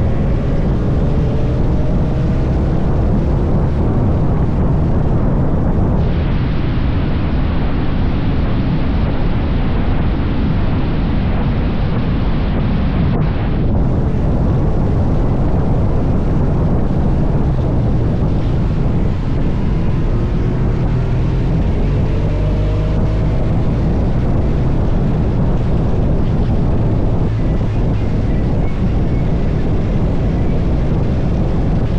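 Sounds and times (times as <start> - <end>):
motorcycle engine running: 0.0 - 6.0, 13.7 - 31.9
wind noise on microphone: 0.0 - 31.9.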